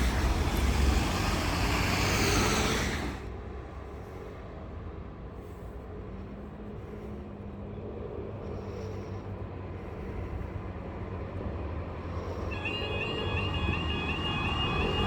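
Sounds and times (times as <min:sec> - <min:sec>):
road traffic rumble: 0:00.0 - 0:15.0
level crossing warning alarm: 0:12.4 - 0:15.0.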